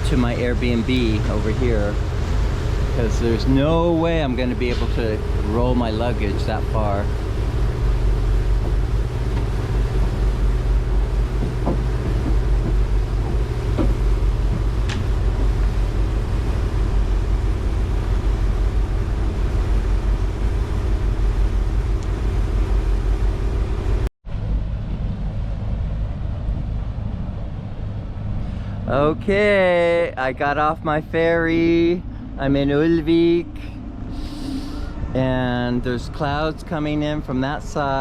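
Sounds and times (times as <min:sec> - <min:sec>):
ferry engine rumbling: 0:00.0 - 0:38.0
faint knocks: 0:10.9 - 0:15.7.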